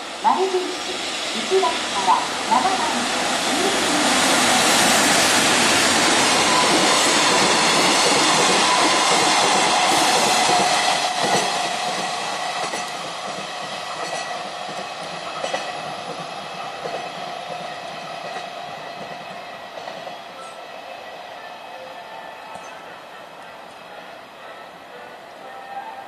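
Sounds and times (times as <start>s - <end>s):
freight train rolling past: 0.0s - 26.0s
wheels clacking over rail joints: 5.8s - 20.6s.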